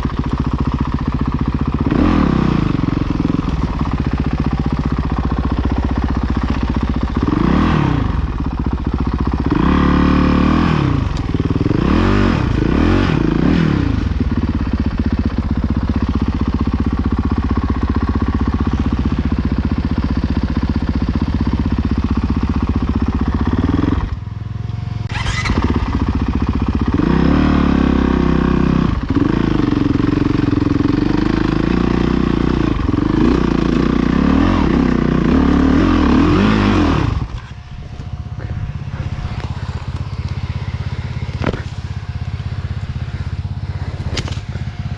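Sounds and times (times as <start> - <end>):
dirt bike engine revving: 0.0 - 24.2, 25.0 - 44.9.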